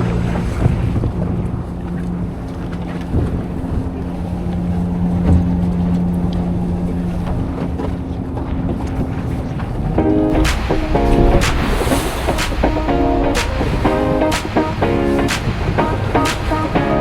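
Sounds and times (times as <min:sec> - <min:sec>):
boat engine humming: 0:00.0 - 0:17.0
wind on microphone: 0:08.6 - 0:16.8.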